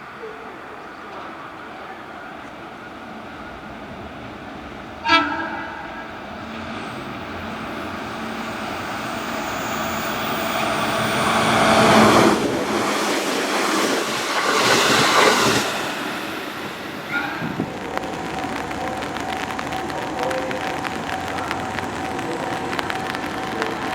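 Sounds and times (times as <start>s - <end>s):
train running along platform: 0.0s - 23.9s
train horn blast: 5.0s - 6.2s.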